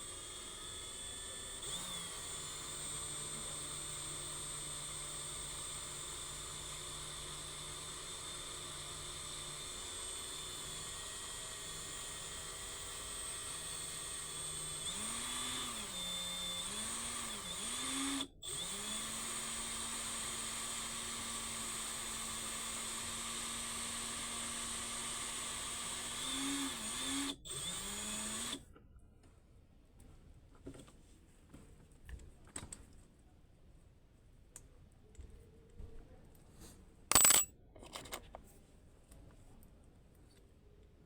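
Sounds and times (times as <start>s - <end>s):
power drill motor: 0.0s - 28.6s.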